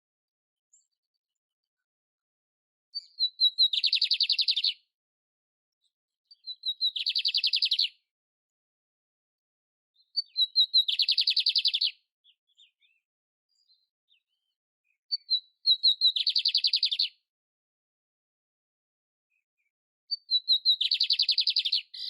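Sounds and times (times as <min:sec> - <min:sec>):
canary singing trills: 0:03.0 - 0:04.8, 0:06.3 - 0:08.0, 0:10.0 - 0:17.2, 0:20.1 - 0:22.0.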